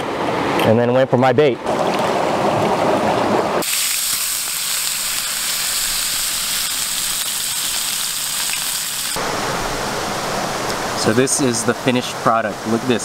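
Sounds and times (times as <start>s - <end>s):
fish sizzling in oil: 3.6s - 9.2s.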